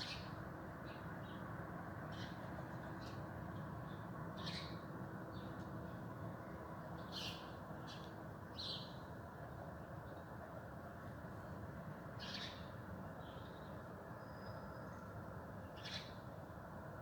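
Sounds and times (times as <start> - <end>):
songbirds chirping: 0.0 - 9.2, 12.1 - 16.3
low background noise: 0.0 - 17.0.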